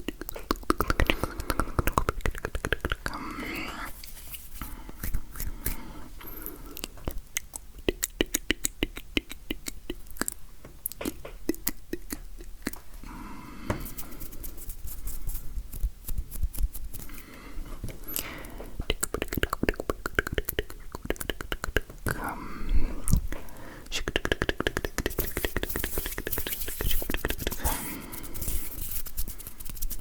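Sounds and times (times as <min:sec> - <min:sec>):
hand clicks and taps: 0:24.0 - 0:27.6.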